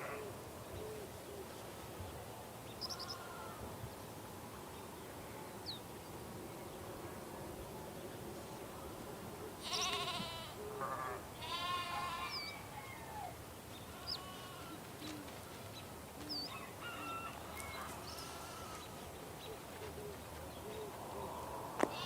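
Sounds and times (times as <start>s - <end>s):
sheep bleating: 9.6s - 12.5s, 13.9s - 14.8s, 18.1s - 18.9s.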